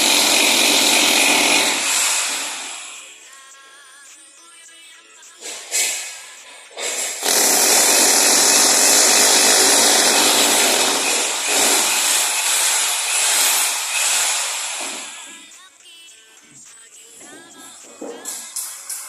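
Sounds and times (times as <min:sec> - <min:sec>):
power tool grinding: 0:00.0 - 0:03.0, 0:06.8 - 0:15.4.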